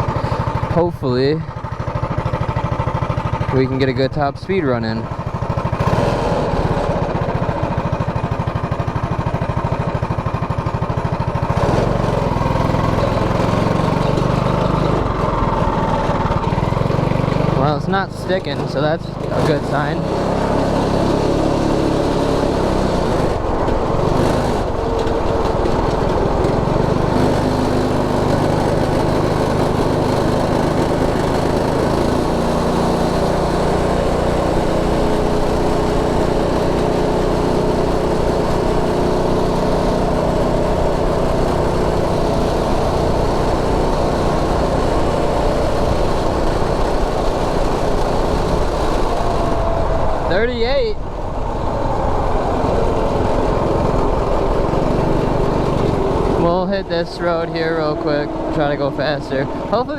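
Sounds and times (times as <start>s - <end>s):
small engine running at high revs: 0.0s - 59.9s
rushing noise: 40.7s - 59.9s.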